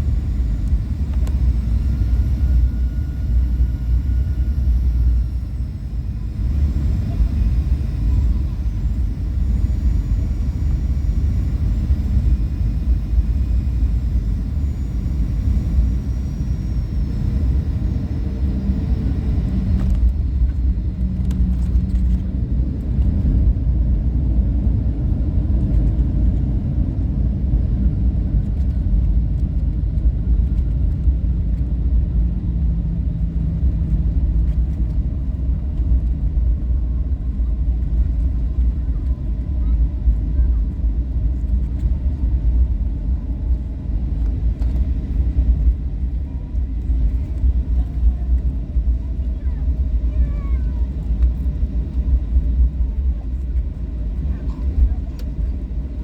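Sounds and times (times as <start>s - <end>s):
faint high whine: 0.0s - 22.2s
aircraft cabin engine rumble: 0.0s - 56.0s.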